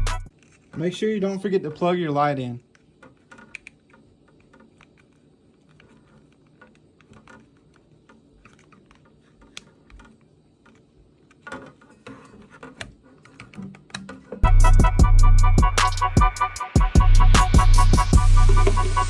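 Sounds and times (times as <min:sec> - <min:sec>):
small plastic and metal parts clicking: 0:00.3 - 0:00.9, 0:02.6 - 0:14.4.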